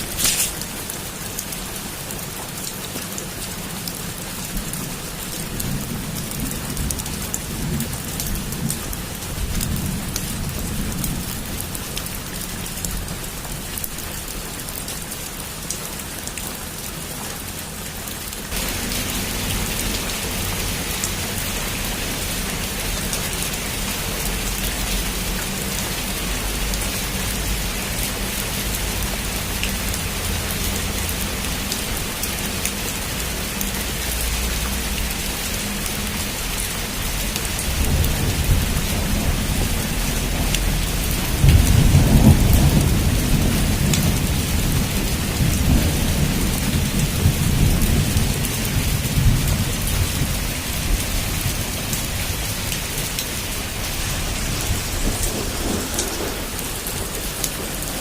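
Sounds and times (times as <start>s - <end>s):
heavy rain on a roof: 0.0s - 58.0s
thunder rumble: 37.6s - 58.0s.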